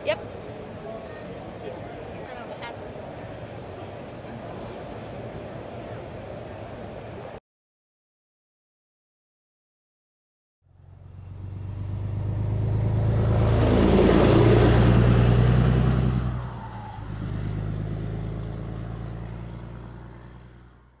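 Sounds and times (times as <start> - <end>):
high whine rising in pitch: 10.7 - 20.2
heavy truck driving past: 10.7 - 21.0.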